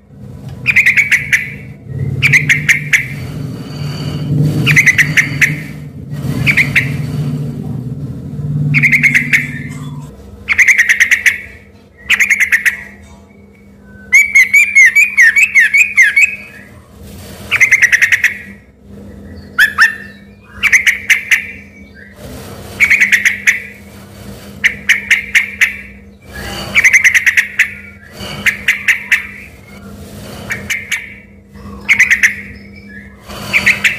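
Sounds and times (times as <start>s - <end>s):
bird chattering song: 0.6s - 7.2s, 8.7s - 16.8s, 17.5s - 23.9s, 24.6s - 33.9s.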